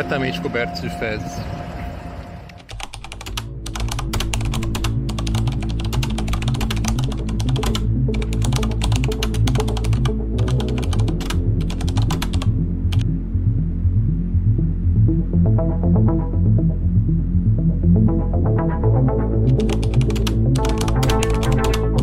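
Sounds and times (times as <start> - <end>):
low sustained background music: 0.0 - 22.0
rapid keyboard typing clicks: 2.5 - 13.0, 19.5 - 22.0.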